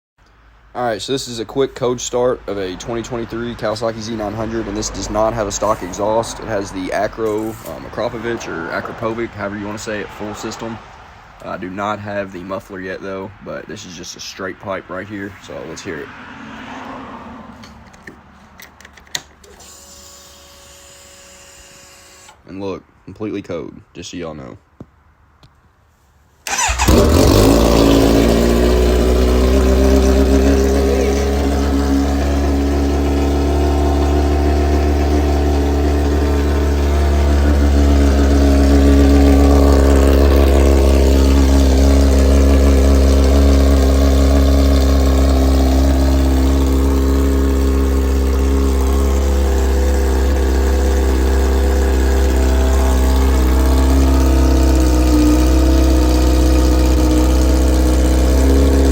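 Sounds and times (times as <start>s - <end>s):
motorcycle engine starting and idling: 1.0s - 10.8s, 26.5s - 58.9s.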